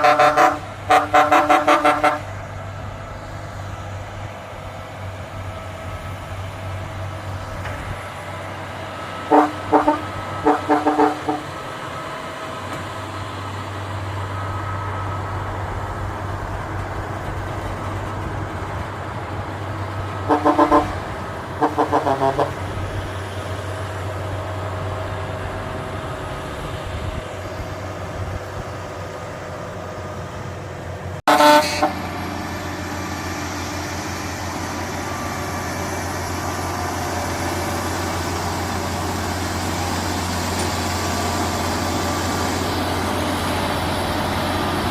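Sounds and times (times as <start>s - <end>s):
truck horn blasts: 0.0s - 2.5s, 9.1s - 11.6s, 20.2s - 22.8s, 31.3s - 32.4s
truck engine running: 0.0s - 44.9s.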